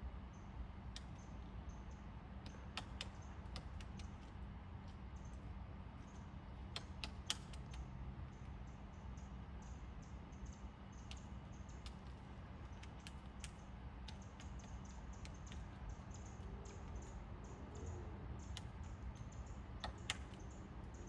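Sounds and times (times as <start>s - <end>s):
steady low hum: 0.0s - 21.0s
woodpecker tapping on wood: 2.4s - 4.4s, 6.7s - 7.8s, 11.0s - 17.1s, 18.4s - 20.6s.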